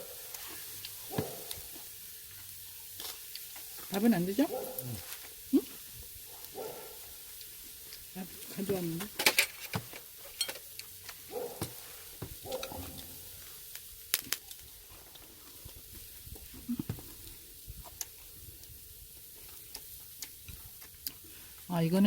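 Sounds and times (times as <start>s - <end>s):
meat sizzling on a grill: 0.0s - 22.0s
utensils and dishes clinking: 9.2s - 10.7s.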